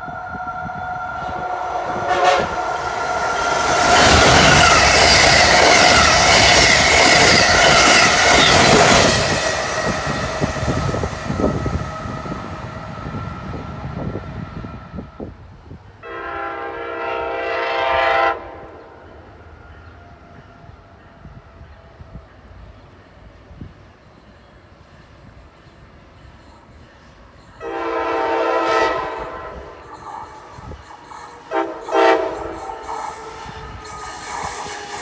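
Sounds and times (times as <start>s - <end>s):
train horn blast: 0.0s - 9.2s, 16.0s - 19.0s, 27.6s - 29.8s, 31.4s - 35.0s
train rushing past: 0.0s - 35.0s.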